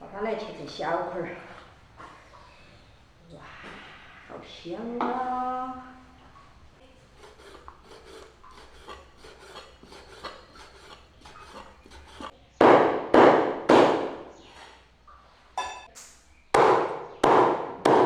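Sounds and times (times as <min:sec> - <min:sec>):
loud rasping knife strokes: 0:07.0 - 0:12.4
knife chopping on wooden board: 0:07.2 - 0:14.3, 0:16.6 - 0:18.0.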